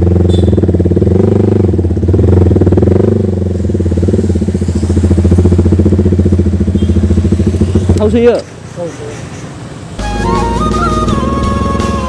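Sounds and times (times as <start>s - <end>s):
motorcycle exhaust pulsing: 0.0s - 8.9s.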